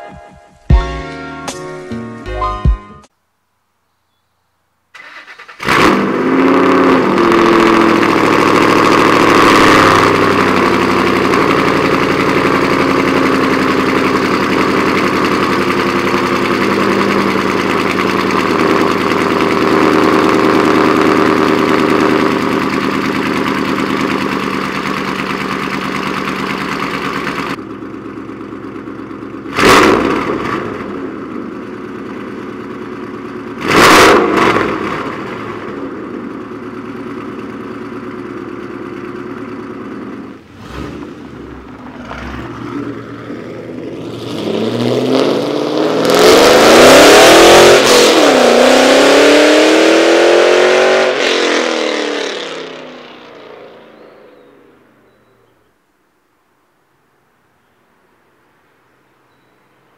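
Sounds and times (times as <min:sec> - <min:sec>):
car engine starting: 0:04.9 - 0:55.4
engine throttle blips: 0:05.0 - 0:55.5
loud fast engine idle: 0:07.3 - 0:33.6.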